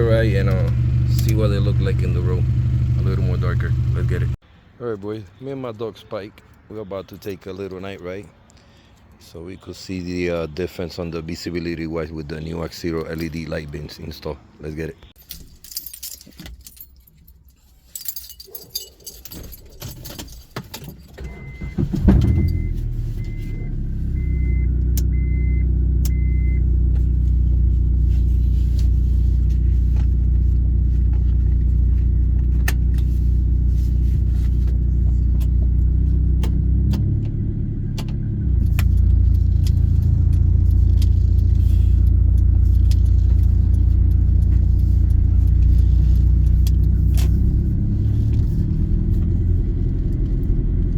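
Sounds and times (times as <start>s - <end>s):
car engine starting and running: 0.0s - 4.4s, 21.1s - 50.9s
keys jangling: 15.2s - 21.3s
car warning chime beeping: 21.2s - 26.7s.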